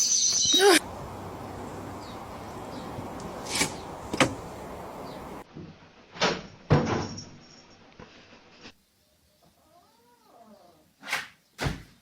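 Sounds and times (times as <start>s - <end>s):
sharp knocks and thuds: 3.4s - 4.5s.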